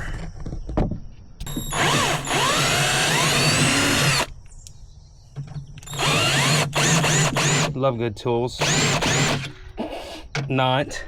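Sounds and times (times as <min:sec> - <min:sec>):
power drill drilling metal: 0:01.4 - 0:04.3, 0:05.8 - 0:07.8, 0:08.6 - 0:09.5.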